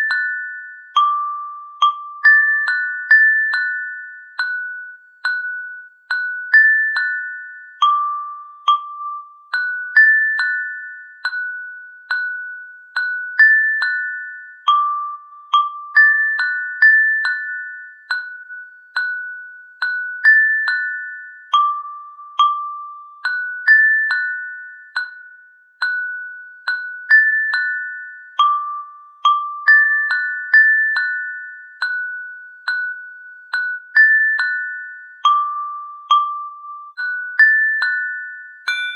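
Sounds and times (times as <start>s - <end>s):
bell-like struck notes melody: 0.0s - 38.9s.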